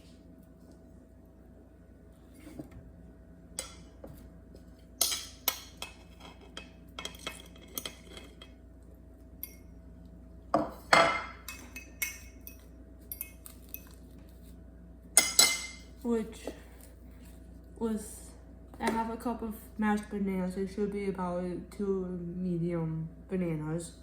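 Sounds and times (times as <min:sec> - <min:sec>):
utensils clinking against dishes: 0:05.0 - 0:08.6, 0:10.6 - 0:14.1, 0:15.2 - 0:15.9.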